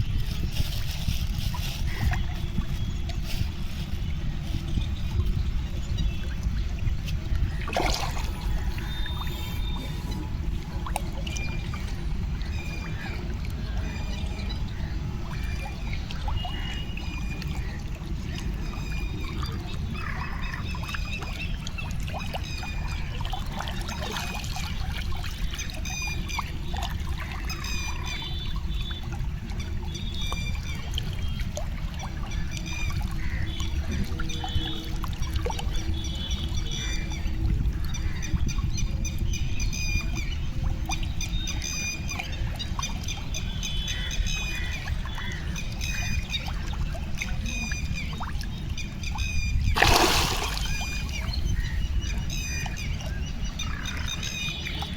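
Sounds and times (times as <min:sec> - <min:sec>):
steady low rumble: 0:00.0 - 0:18.8
water splashing and trickling: 0:00.0 - 0:54.9
birds chirping and calling: 0:41.2 - 0:54.9.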